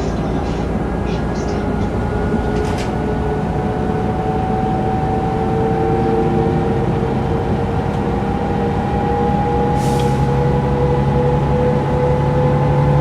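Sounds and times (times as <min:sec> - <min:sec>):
bus diesel drone with rising whine: 0:00.0 - 0:13.0.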